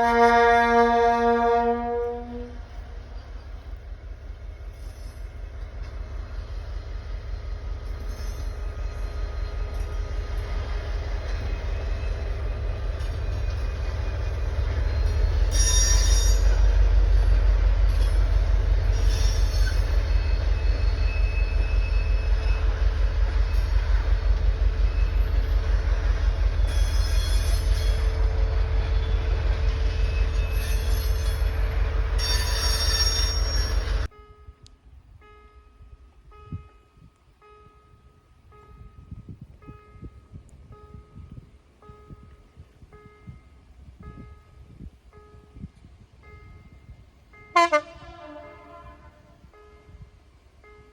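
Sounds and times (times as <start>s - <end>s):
train rumbling past: 0.0s - 50.9s.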